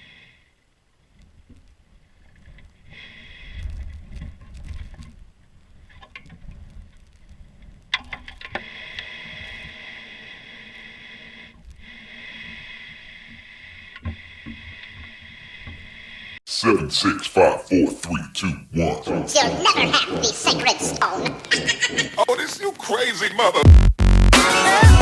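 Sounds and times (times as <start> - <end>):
wind rumbling on microphone: 3.4 - 8.0.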